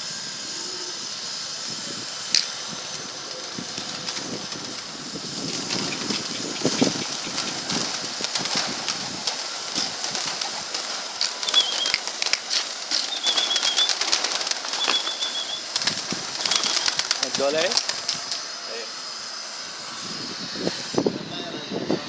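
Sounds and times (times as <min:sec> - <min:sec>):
pigeon wings flapping: 0:02.3 - 0:18.4
bird trilling chirps: 0:02.8 - 0:08.2, 0:11.1 - 0:17.6.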